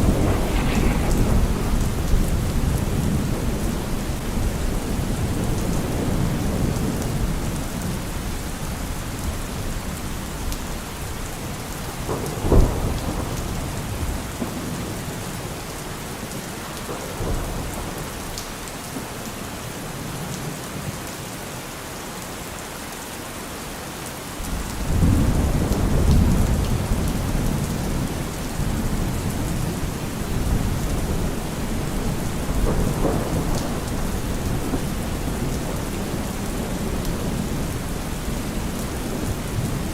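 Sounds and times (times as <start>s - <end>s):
thunder clap: 0.0s - 6.2s, 28.6s - 39.9s
rolling thunder rumble: 0.0s - 8.3s, 11.4s - 15.6s, 24.5s - 39.9s
steady rain falling: 0.0s - 39.9s.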